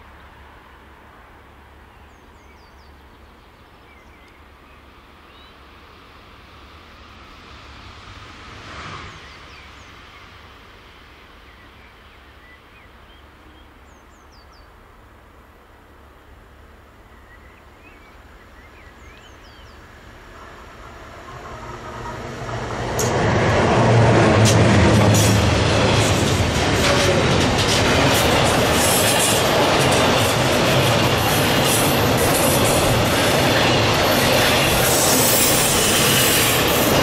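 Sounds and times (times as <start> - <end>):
electric locomotive passing: 5.6 - 12.2, 18.1 - 37.0
freight wagons rumbling: 20.8 - 37.0.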